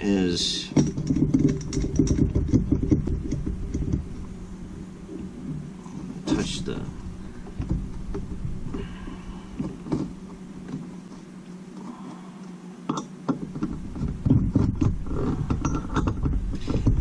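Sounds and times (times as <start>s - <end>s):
steady low hum: 0.0s - 17.0s
tools clicking and knocking: 0.7s - 4.1s, 12.9s - 17.0s.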